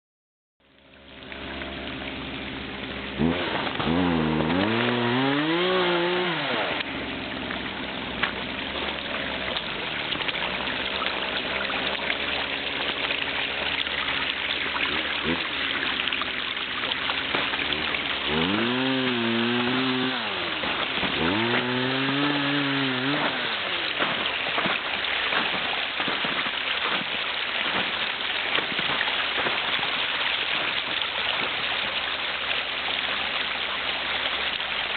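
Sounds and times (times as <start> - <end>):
creek rushing: 0.9 - 34.9
motor rising and falling in pitch: 1.3 - 8.2, 14.6 - 24.3.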